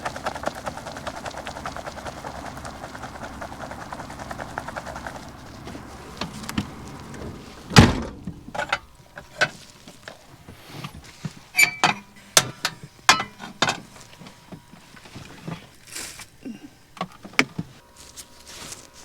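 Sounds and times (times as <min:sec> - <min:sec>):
heavy thump: 0:07.2 - 0:08.8.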